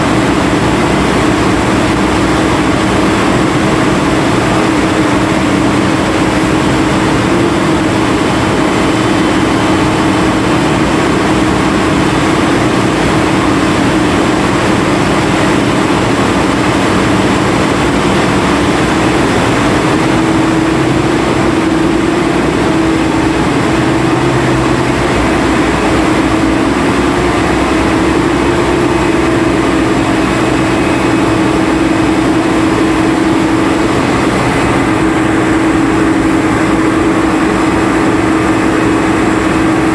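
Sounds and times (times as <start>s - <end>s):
dredge engine droning: 0.0s - 39.9s.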